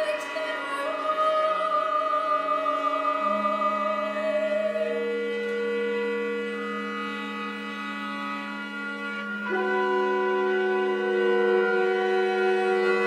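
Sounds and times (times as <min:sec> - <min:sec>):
chamber ensemble chords: 0:00.0 - 0:13.0
soprano holding high note: 0:03.1 - 0:13.0.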